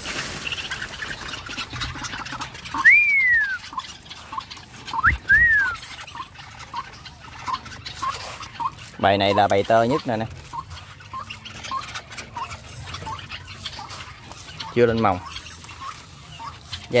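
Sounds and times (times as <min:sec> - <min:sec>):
caged birds peeping: 0:00.0 - 0:17.0
rising and falling whistles: 0:02.8 - 0:03.6, 0:05.0 - 0:05.8.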